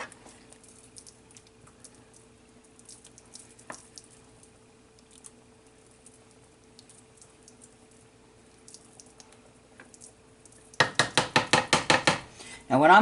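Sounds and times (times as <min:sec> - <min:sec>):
faint hum: 0:00.0 - 0:10.8
sharp knocks: 0:10.8 - 0:12.3.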